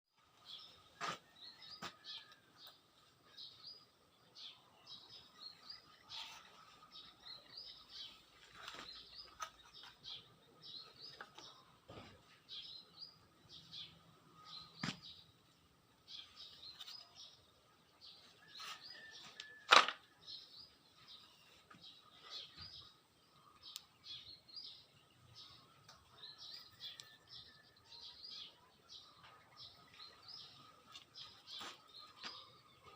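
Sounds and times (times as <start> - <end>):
small birds chirping: 0.1 - 32.9.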